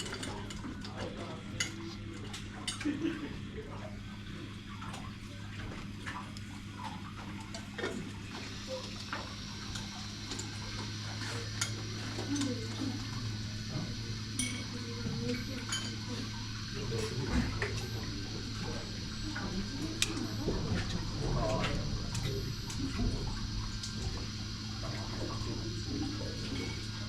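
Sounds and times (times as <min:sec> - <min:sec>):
steady low hum: 0:00.0 - 0:27.0
faint voices: 0:10.6 - 0:27.0.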